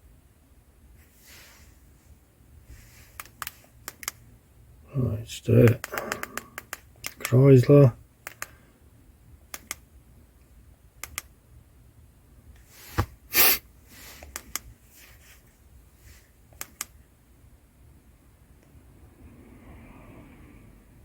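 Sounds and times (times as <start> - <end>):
button clicks on handheld device: 9.5 - 9.8.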